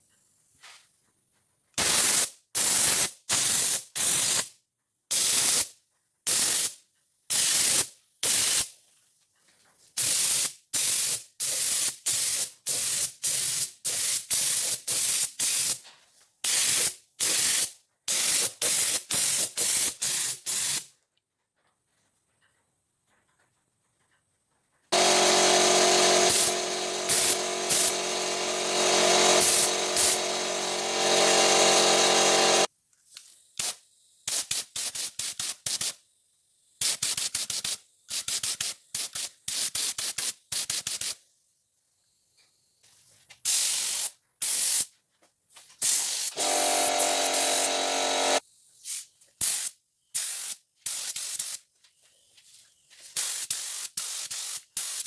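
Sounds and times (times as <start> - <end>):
bursts of spraying hiss: 25.0 - 32.7, 45.8 - 51.6, 53.0 - 55.0
machine humming: 25.0 - 32.7, 46.4 - 48.4.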